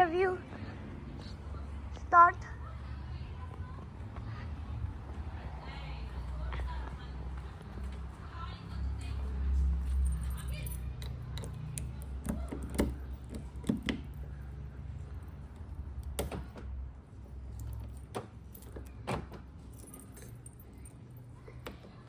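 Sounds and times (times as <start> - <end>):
keys jangling: 9.8 - 14.5, 17.2 - 21.4.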